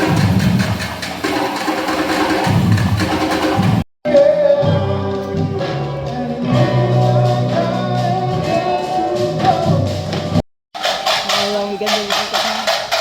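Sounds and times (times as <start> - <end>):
samba band music: 0.0 - 13.0
person singing: 4.1 - 10.2.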